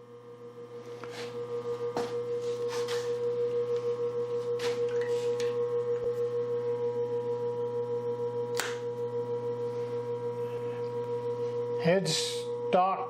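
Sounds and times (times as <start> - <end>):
grinder motor electrical hum: 0.0 - 13.0.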